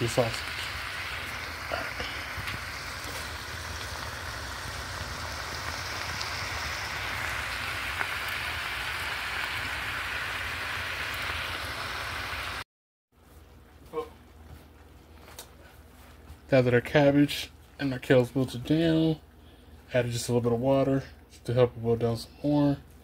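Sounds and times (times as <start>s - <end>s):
vegetables sizzling in a skillet: 0.0s - 12.6s.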